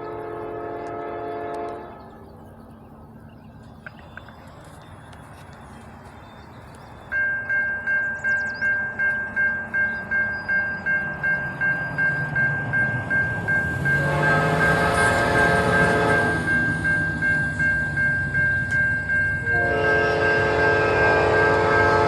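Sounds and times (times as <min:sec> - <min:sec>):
locomotive air horn blast: 0:00.0 - 0:02.0, 0:13.9 - 0:16.5, 0:19.4 - 0:22.0
railroad crossing bell ringing: 0:03.6 - 0:22.0.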